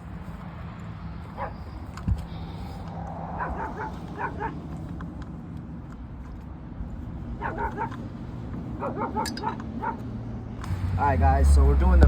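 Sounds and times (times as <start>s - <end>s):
dog yipping and whining: 7.4s - 7.9s.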